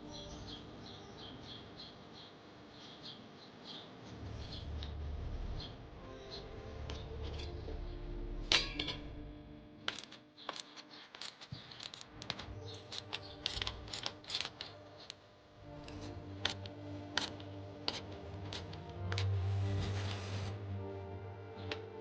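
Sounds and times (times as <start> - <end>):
hand tools clicking and clinking: 9.8 - 15.2, 15.8 - 19.4.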